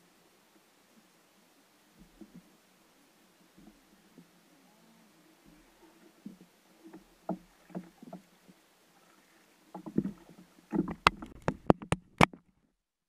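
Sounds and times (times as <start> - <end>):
knocks and bumps on a kayak: 2.0 - 2.5, 5.5 - 8.6, 9.7 - 12.5.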